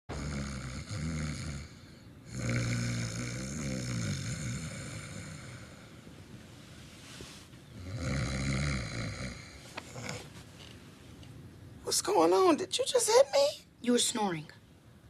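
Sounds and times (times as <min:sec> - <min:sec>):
woman snoring: 0:00.1 - 0:05.9, 0:07.8 - 0:10.2.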